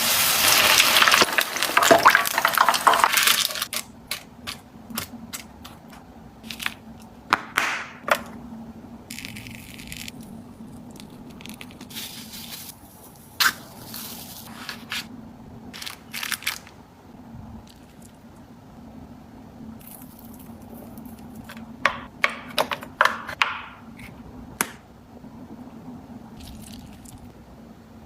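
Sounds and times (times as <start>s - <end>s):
low steady hum: 0.0s - 28.0s
food packages being handled: 15.7s - 16.8s
packaging crinkling: 15.7s - 16.8s
clicks and taps: 21.8s - 23.8s.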